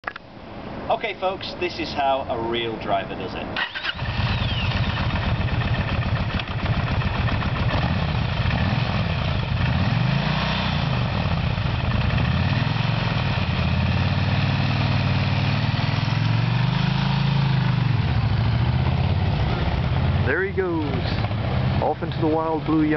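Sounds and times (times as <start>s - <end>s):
motorcycle engine idling and revving: 3.6s - 22.9s.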